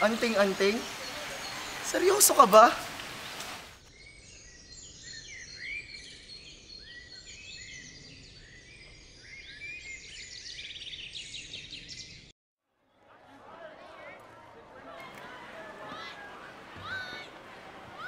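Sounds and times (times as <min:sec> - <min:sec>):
faint outdoor hiss: 0:00.0 - 0:03.8
small birds chirping: 0:00.0 - 0:12.3.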